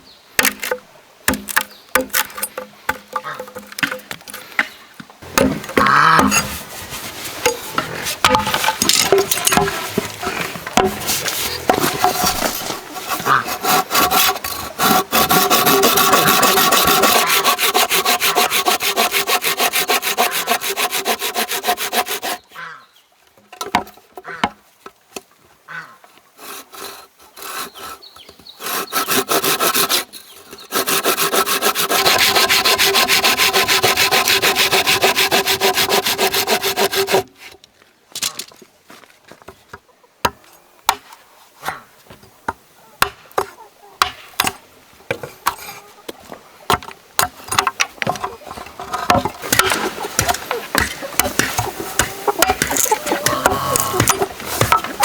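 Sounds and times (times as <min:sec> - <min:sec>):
hand saw cutting bamboo: 0:05.3 - 0:22.6, 0:26.4 - 0:37.6, 0:47.2 - 0:55.0.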